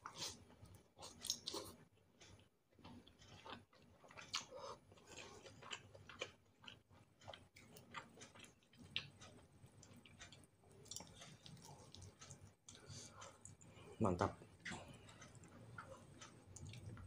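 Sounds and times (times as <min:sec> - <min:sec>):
close-up chewing: 0:00.0 - 0:13.8, 0:14.5 - 0:17.0.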